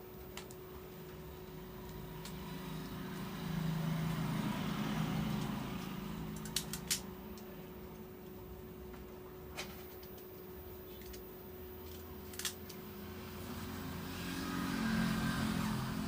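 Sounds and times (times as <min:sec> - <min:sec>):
vehicle engine passing by: 0:01.6 - 0:06.9, 0:13.0 - 0:16.0
sharp clicks: 0:06.3 - 0:07.5, 0:11.9 - 0:12.8.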